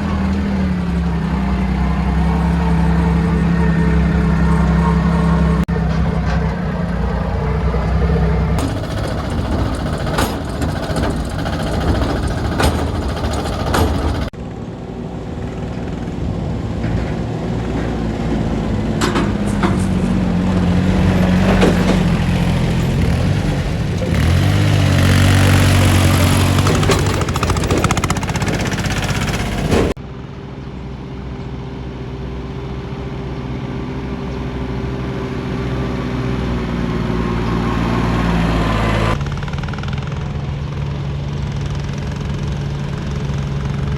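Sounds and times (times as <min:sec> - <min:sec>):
tractor diesel engine running: 0:00.0 - 0:43.9
knocks: 0:08.6 - 0:14.3.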